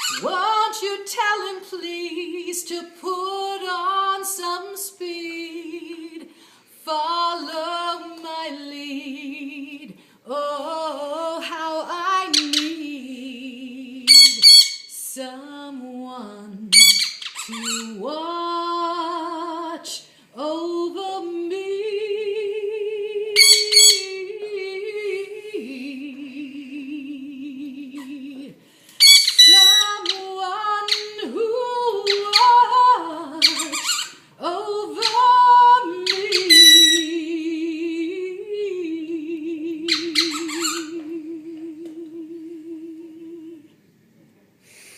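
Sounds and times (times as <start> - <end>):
parrot squawking: 0.0 - 0.2, 12.3 - 12.8, 14.1 - 14.9, 16.7 - 18.0, 23.4 - 24.2, 29.0 - 31.2, 32.0 - 32.6, 33.4 - 34.2, 35.0 - 35.3, 36.0 - 37.1, 39.9 - 41.0
woman singing with vibrato: 0.0 - 43.8.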